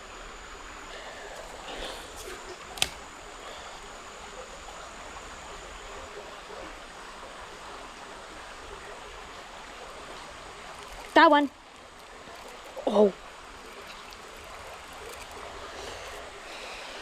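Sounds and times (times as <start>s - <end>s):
creek flowing: 0.6s - 17.0s
sharp click: 2.8s - 3.0s.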